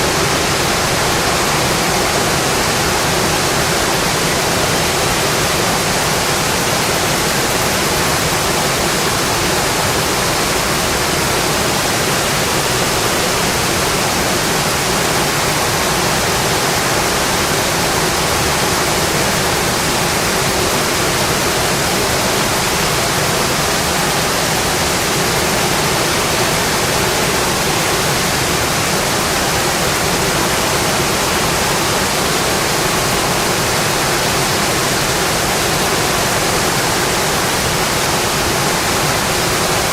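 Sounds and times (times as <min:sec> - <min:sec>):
heavy rain on a metal roof: 0:00.0 - 0:39.9.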